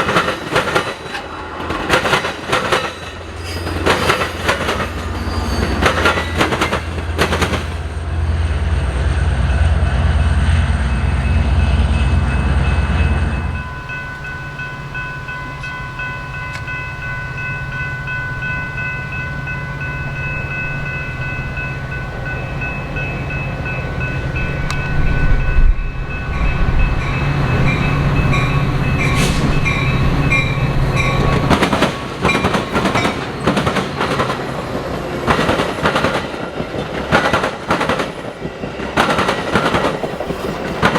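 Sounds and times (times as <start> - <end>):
wheels clacking over rail joints: 0.0 - 8.0, 26.3 - 40.9
diesel locomotive rumble: 0.0 - 40.9
train cars whining past: 0.0 - 40.9.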